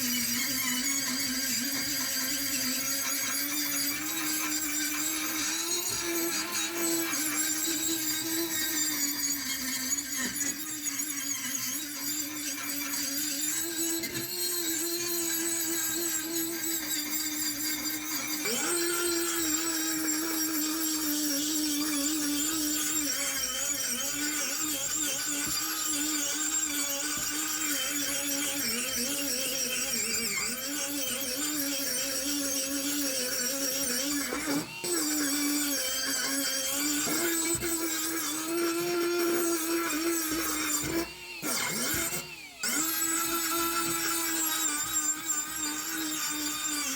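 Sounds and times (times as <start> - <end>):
electric power tool motor running: 0.0 - 46.9.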